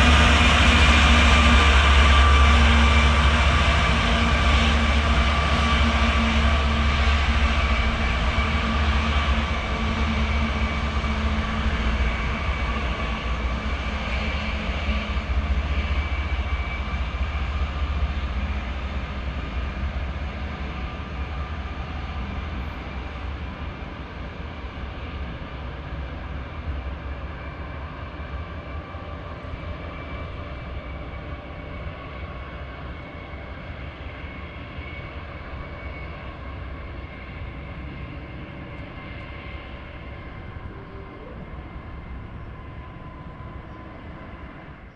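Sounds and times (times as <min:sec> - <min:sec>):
freight train rumbling on rails: 0:00.0 - 0:44.9
thin high whine: 0:38.0 - 0:44.7.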